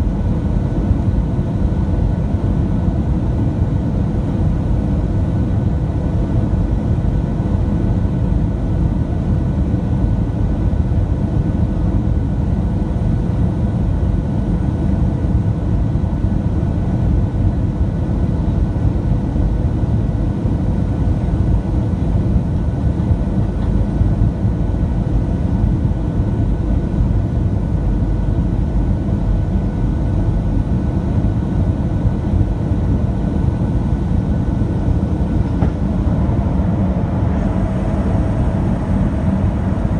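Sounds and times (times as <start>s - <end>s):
airplane cabin roar: 0.0s - 39.9s
faint steady whine: 20.8s - 39.9s.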